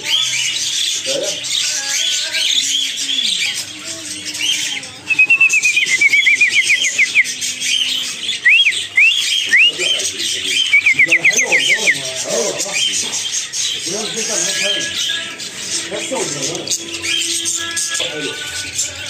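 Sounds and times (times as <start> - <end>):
short high bird chirps: 5.1 - 7.3, 10.6 - 11.7
rising whistled bird notes: 5.1 - 12.0.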